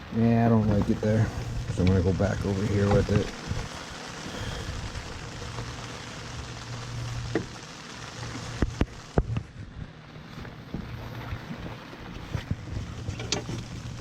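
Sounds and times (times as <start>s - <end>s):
steady rain falling: 0.0s - 14.0s
sharp clicks and knocks: 13.0s - 13.8s.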